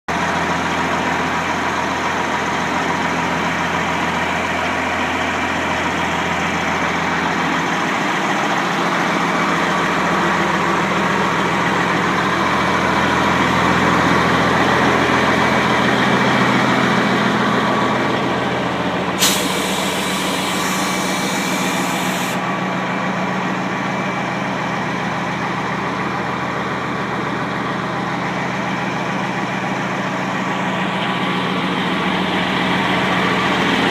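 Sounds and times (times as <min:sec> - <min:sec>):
diesel truck engine idling: 0:00.1 - 0:33.9
air brake hiss: 0:19.2 - 0:22.4.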